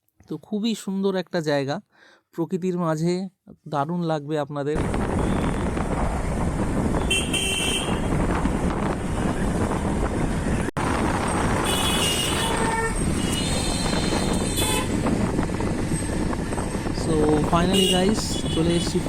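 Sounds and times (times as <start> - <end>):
road traffic noise: 4.8 - 19.0
vehicle horns honking: 7.0 - 8.2, 11.6 - 15.0, 17.6 - 19.0.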